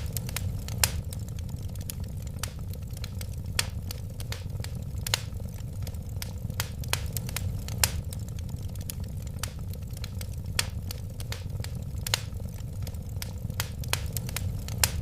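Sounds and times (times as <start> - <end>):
sharp pops from fire: 0.0 - 15.0
wood fire crackling: 0.0 - 15.0.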